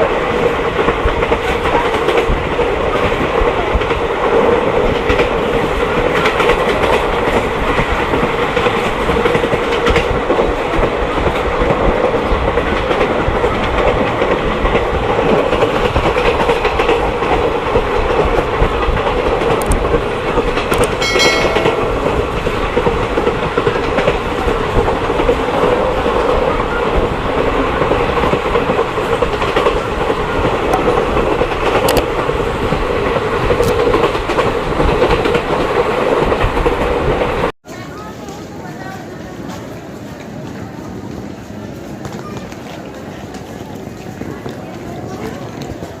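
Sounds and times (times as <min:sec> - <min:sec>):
train wheels on track: 0:00.0 - 0:46.0
short pitched tone: 0:21.0 - 0:22.7.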